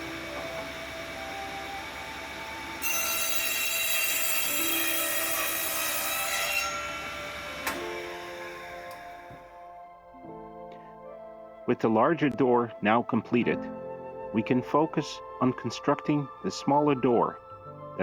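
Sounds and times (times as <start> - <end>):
power saw cutting wood: 0.0 - 9.3.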